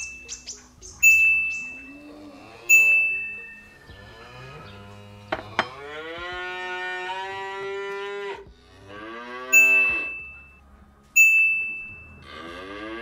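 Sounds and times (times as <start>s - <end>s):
cow mooing: 1.8s - 10.2s, 12.1s - 13.0s
bright ding: 9.6s - 10.6s, 11.2s - 12.2s.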